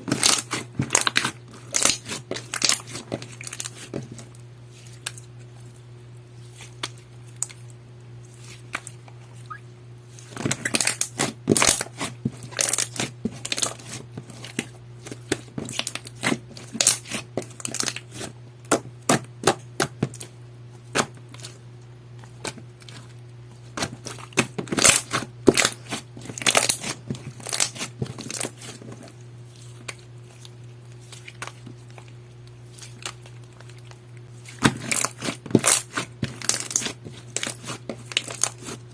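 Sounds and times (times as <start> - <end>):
slime clicking and crackling: 32.7 - 38.8.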